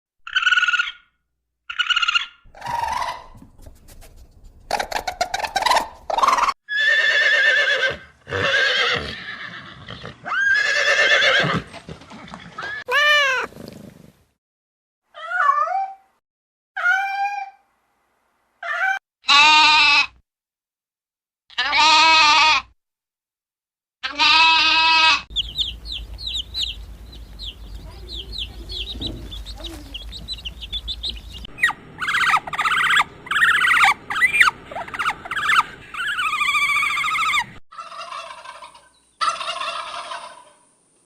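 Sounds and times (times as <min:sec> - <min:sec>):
horses neighing: 0:04.9 - 0:13.8.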